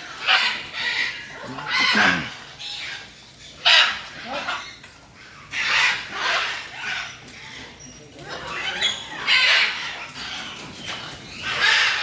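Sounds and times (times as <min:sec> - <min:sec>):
macaw squawking: 0:00.1 - 0:04.5.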